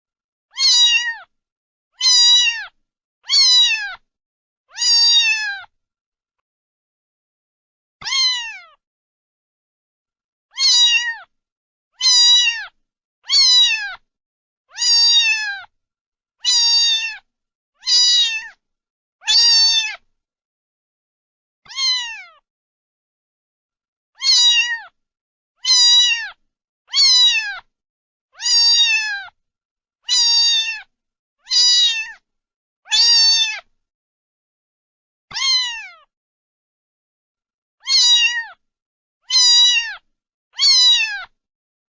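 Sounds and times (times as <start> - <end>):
cat meowing: 0.5 - 1.3, 2.0 - 4.0, 4.7 - 5.7, 8.0 - 8.8, 10.5 - 11.3, 12.0 - 14.0, 14.7 - 15.7, 16.4 - 18.6, 19.2 - 20.1, 21.6 - 22.4, 24.2 - 25.0, 25.6 - 27.7, 28.4 - 29.4, 30.0 - 32.2, 32.9 - 33.7, 35.3 - 36.1, 37.8 - 38.6, 39.2 - 41.4.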